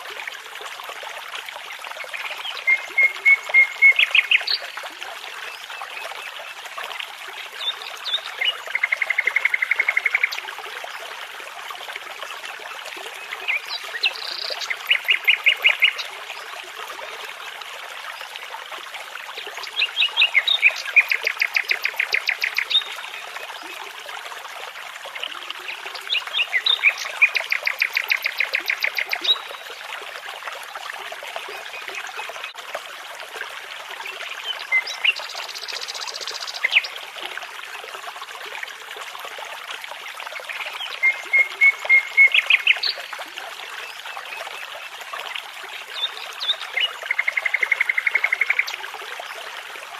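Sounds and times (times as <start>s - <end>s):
brook babbling: 0.0s - 49.9s
songbird singing: 2.3s - 4.7s.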